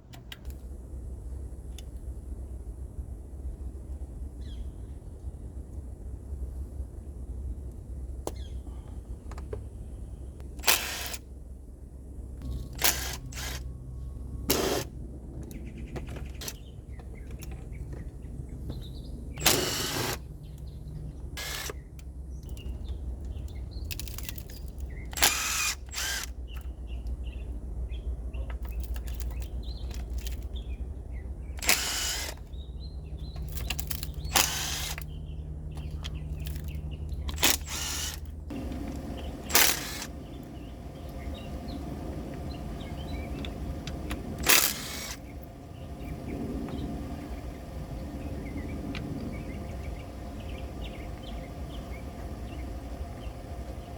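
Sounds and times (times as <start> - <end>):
low hum: 26.9 - 53.9.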